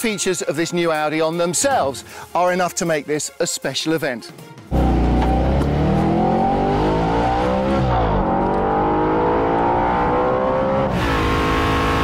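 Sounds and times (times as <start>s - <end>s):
car engine accelerating: 4.7s - 12.0s.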